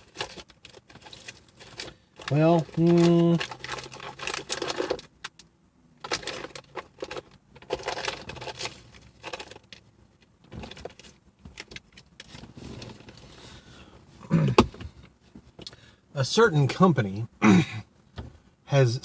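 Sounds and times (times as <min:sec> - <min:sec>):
hands rummaging through small items: 0:00.0 - 0:05.1, 0:06.0 - 0:09.8.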